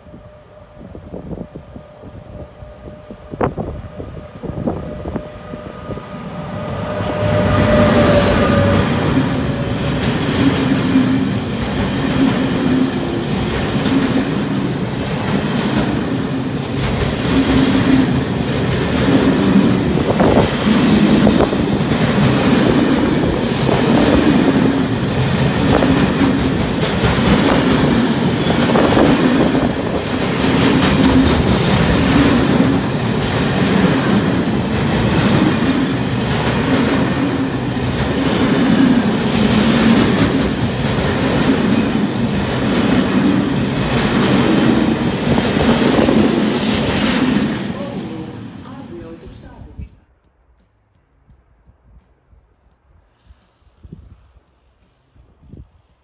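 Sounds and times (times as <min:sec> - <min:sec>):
freight train rumbling past: 0:00.0 - 0:49.9
wheels clattering over rail joints: 0:07.2 - 0:48.0.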